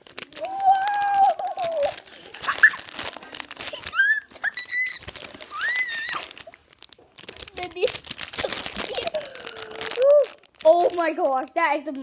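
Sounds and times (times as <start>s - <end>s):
plastic packaging crinkling: 0.0s - 12.0s
person exclaiming: 0.4s - 2.0s.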